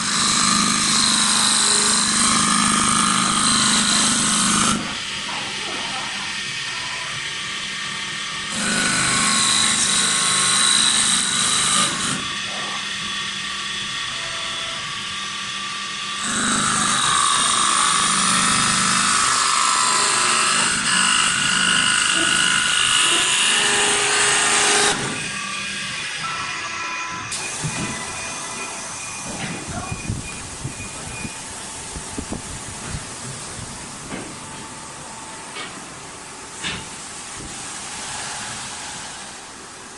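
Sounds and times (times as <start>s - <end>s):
lathe machine running: 0.0s - 29.4s
tool cutting spinning wood: 15.2s - 26.2s.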